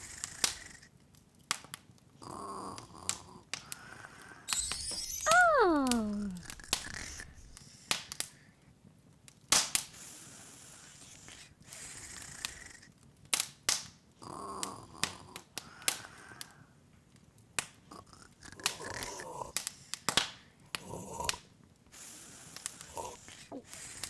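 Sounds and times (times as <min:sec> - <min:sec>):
cartoon voice saying oh: 0:05.2 - 0:06.7.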